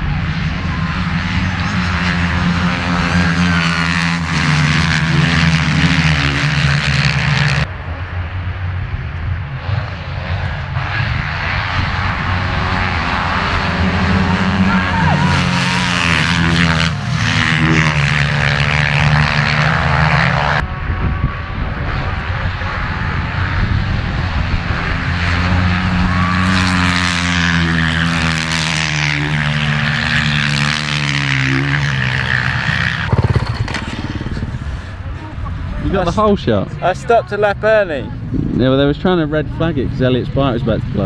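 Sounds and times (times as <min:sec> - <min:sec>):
motocross bike engines revving: 0:00.0 - 0:07.7, 0:10.8 - 0:20.6, 0:24.4 - 0:38.4.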